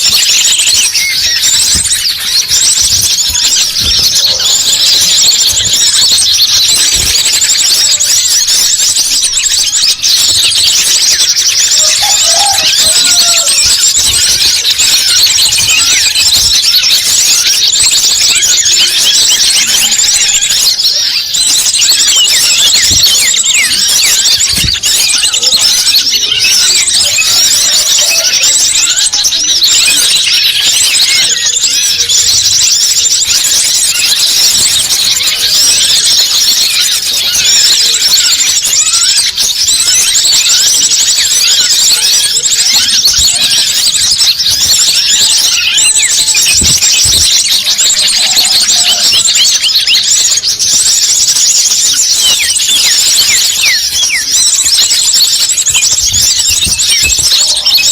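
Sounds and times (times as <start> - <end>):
chorus of small birds chirping: 0.0 - 57.9.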